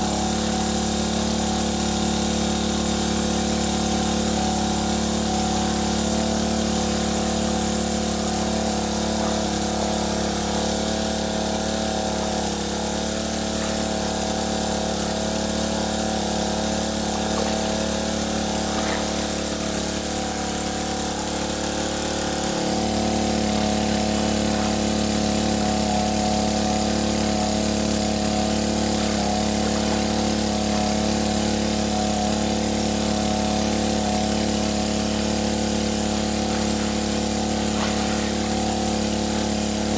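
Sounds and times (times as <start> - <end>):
motor droning: 0.0 - 39.9.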